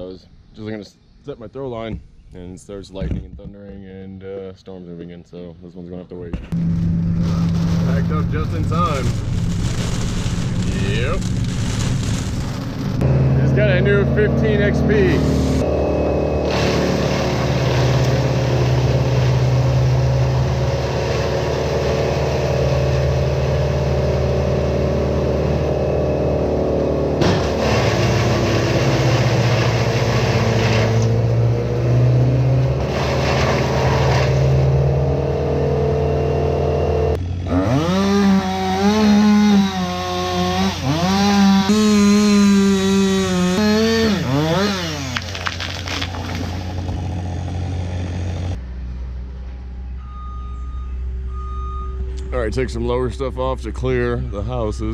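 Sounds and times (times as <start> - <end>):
brush chipper engine running: 6.6 - 48.6.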